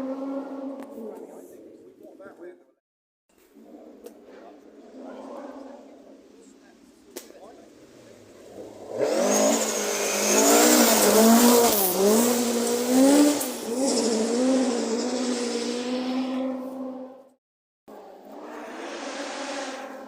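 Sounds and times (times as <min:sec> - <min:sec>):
rally car engine revving: 0:08.2 - 0:17.4, 0:18.0 - 0:20.0.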